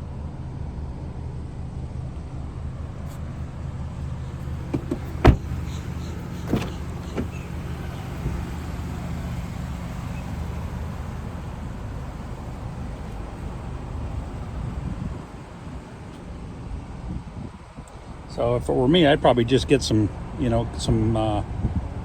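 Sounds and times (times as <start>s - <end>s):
knocks on car body panels: 4.7s - 5.8s.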